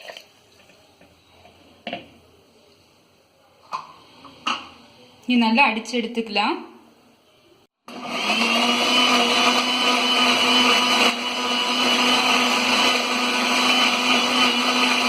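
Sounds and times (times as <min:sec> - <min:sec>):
electric mixer motor whining: 0:07.9 - 0:15.0.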